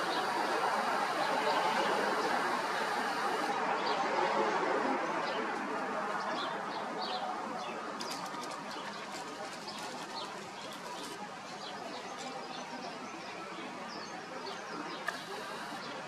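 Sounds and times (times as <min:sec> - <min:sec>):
small birds chirping: 0:00.0 - 0:04.0
sharp clicks: 0:15.1 - 0:15.8.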